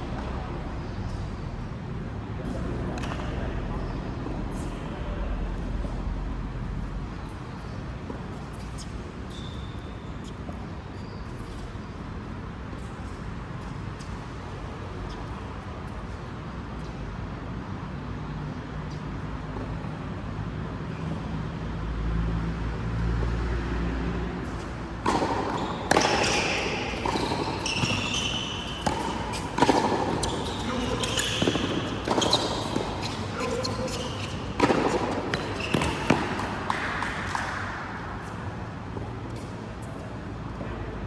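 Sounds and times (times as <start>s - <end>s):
steady background noise: 0.0s - 41.0s
shoe squeaks: 7.2s - 11.9s, 24.4s - 37.6s
racket hits: 24.4s - 38.4s.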